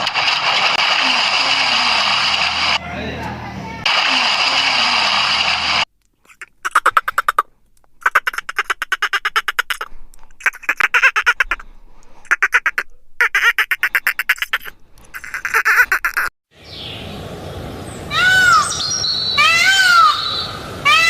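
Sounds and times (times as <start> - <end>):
duck quacking: 6.3 - 11.6, 12.3 - 16.3.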